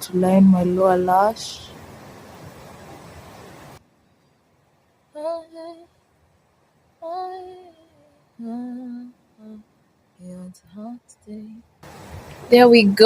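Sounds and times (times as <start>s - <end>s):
steady background hiss: 0.0s - 13.0s
woman humming quietly: 7.1s - 9.6s.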